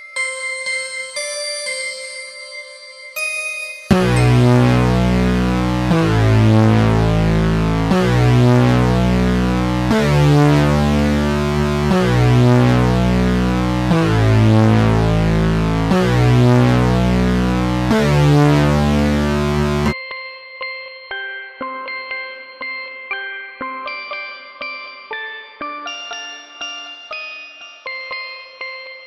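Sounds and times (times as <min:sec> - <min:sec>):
synthesizer chords over heavy bass: 0:03.9 - 0:20.0.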